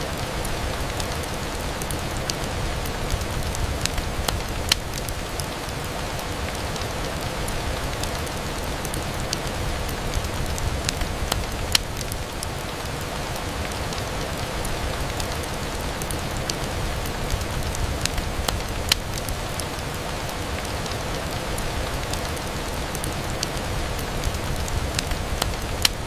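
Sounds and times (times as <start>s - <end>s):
rain on a window: 0.0s - 26.0s.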